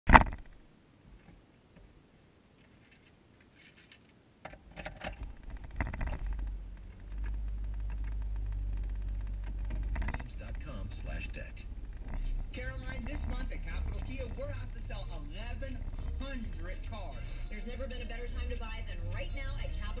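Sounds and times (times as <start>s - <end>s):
clicks and rattles: 2.8s - 12.4s
car engine starting and idling: 5.0s - 20.0s.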